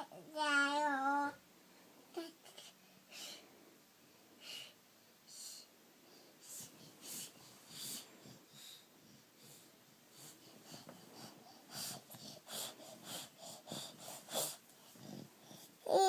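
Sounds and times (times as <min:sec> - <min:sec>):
child pretend snoring: 0:11.9 - 0:16.0.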